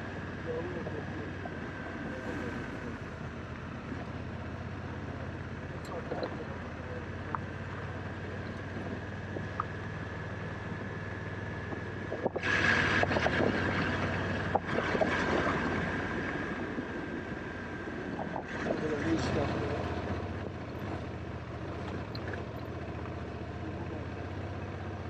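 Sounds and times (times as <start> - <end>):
motorcycle engine running: 0.0 - 14.7, 18.9 - 25.0
wind rushing over microphone: 1.0 - 4.5, 11.5 - 20.5.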